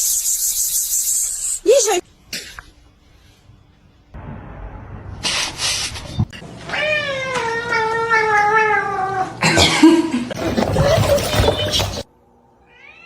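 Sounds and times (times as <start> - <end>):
cat yowling: 6.7 - 9.3.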